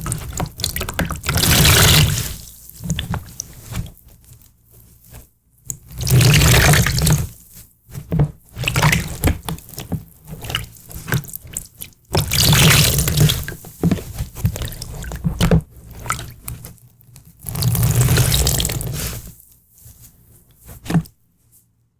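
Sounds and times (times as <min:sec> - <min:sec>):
water splashing and pouring: 0:00.0 - 0:02.4, 0:06.0 - 0:07.2, 0:12.2 - 0:13.5, 0:17.5 - 0:19.2.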